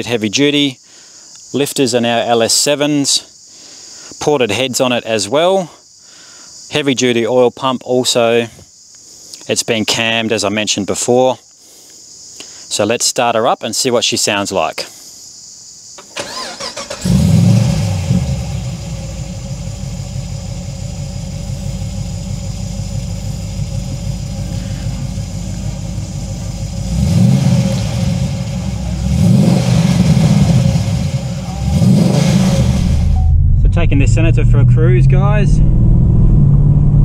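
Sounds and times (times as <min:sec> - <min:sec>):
car engine cranking: 0:16.0 - 0:34.5
engine idling: 0:16.1 - 0:35.0
engine revving: 0:16.2 - 0:37.0.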